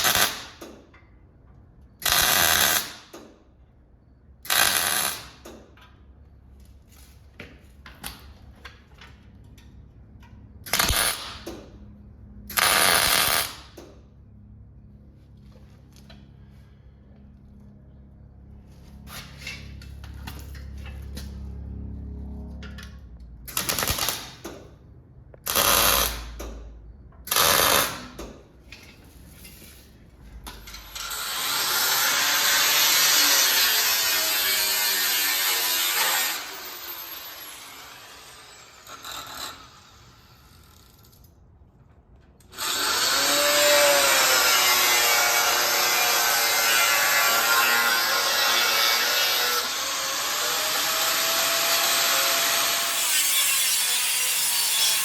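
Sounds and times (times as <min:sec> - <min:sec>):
power tool cutting steel: 0:30.6 - 0:41.2, 0:42.5 - 0:55.0.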